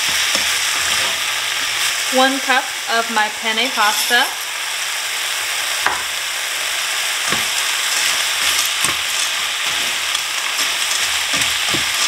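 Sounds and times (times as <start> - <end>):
spatula scraping a skillet: 0.0 - 1.6, 7.3 - 12.0
food sizzling in a skillet: 0.0 - 12.0.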